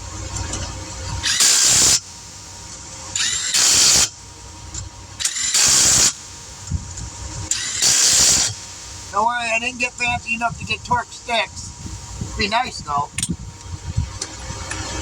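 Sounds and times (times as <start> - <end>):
impact wrench bursts: 1.2 - 2.1, 3.1 - 4.2, 5.2 - 6.2, 7.5 - 8.7.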